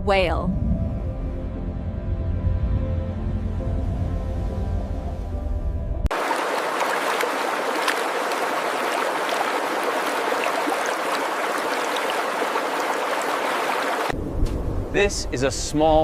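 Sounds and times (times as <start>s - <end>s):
low droning musical tone: 0.5s - 6.1s
running water splashing: 6.1s - 14.2s.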